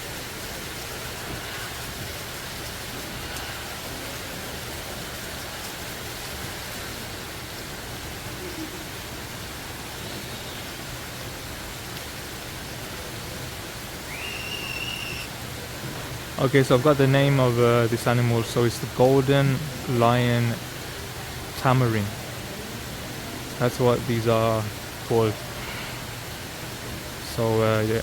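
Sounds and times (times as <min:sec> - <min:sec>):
steady rushing noise: 0:00.0 - 0:28.0
high whistled call: 0:14.0 - 0:15.4.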